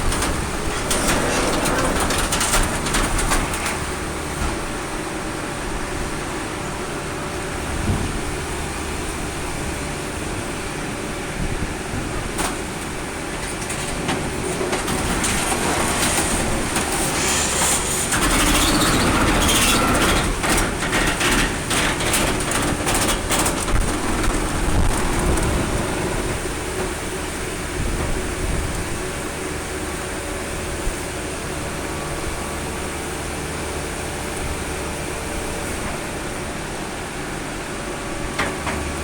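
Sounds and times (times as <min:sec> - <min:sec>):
sheet metal cracking and crunching: 0:00.0 - 0:04.8, 0:12.4 - 0:27.2.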